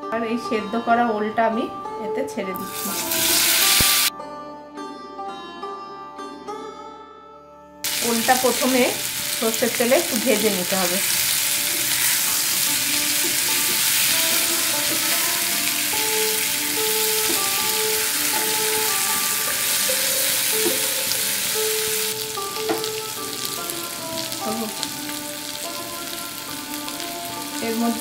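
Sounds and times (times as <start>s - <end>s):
yam cubes sizzling in oil: 2.6s - 4.1s, 7.8s - 28.0s.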